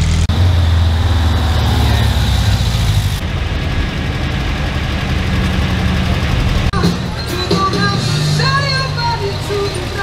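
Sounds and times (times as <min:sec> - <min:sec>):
car engines driving past: 0:00.0 - 0:07.2.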